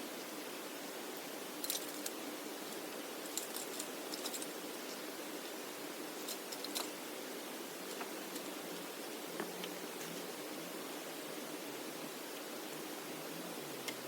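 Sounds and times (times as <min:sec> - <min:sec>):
light clicks and clinks: 0:01.6 - 0:04.6, 0:06.2 - 0:07.0.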